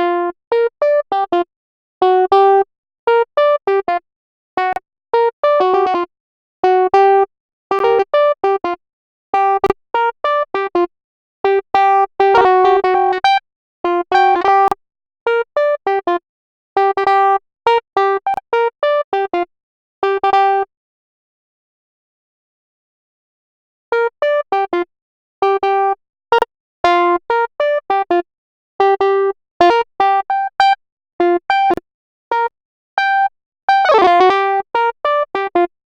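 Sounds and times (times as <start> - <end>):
choppy electronic keyboard melody: 12.3 - 13.4, 14.1 - 14.7.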